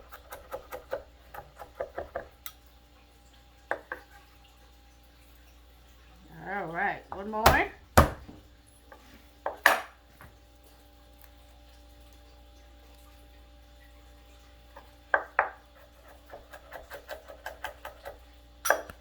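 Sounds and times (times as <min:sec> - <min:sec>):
knife chopping on cutting board: 0:00.0 - 0:02.3, 0:07.4 - 0:08.4, 0:15.1 - 0:18.9.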